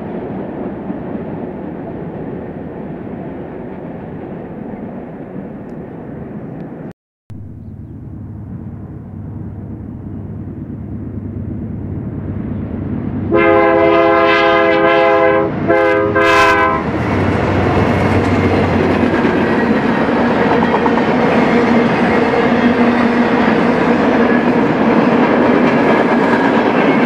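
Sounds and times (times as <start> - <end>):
train rumble: 0.0 - 27.0
locomotive air horn blasts: 13.3 - 16.9
train wheels clickety-clack: 16.9 - 27.0.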